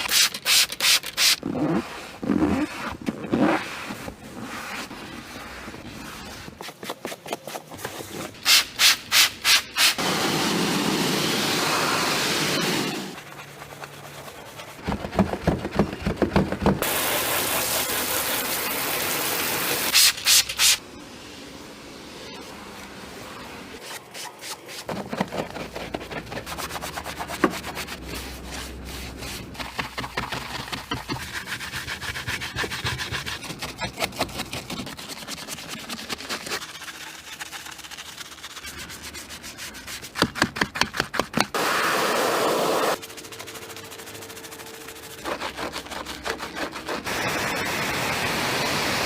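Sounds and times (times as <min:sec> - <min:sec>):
water spray: 0:16.8 - 0:20.8
scrubbing car bodywork: 0:23.8 - 0:47.9.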